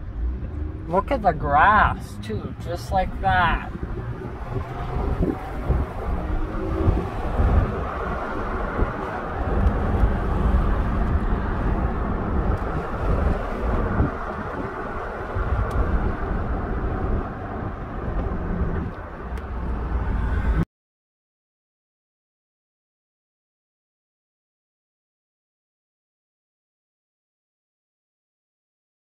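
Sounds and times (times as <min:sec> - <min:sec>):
car road rumble: 0:00.0 - 0:20.6.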